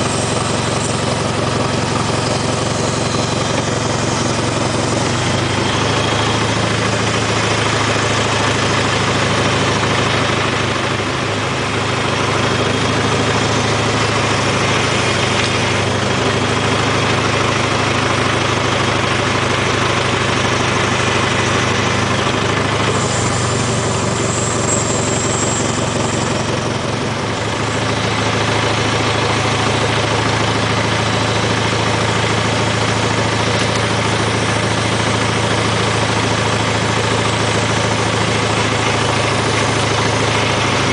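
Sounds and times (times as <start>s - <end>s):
tractor engine idling: 0.0s - 40.9s
thin high-pitched whine: 22.9s - 29.8s.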